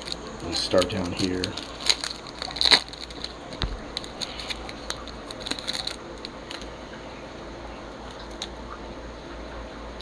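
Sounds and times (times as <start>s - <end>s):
cards clicking and rustling: 0.0s - 6.7s.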